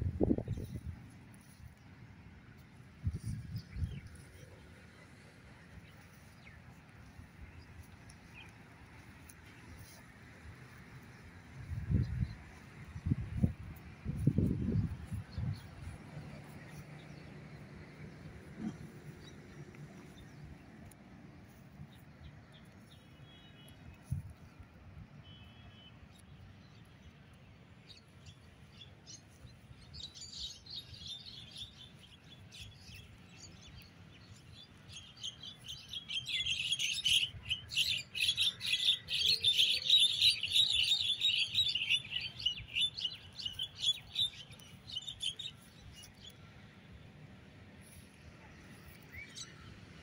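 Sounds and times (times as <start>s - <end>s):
small birds chirping: 25.3s - 47.0s.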